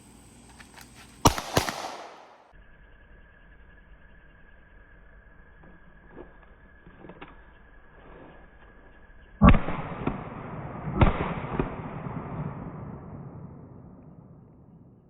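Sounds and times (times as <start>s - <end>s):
pistol shots with echo: 1.2s - 2.5s, 9.4s - 13.9s.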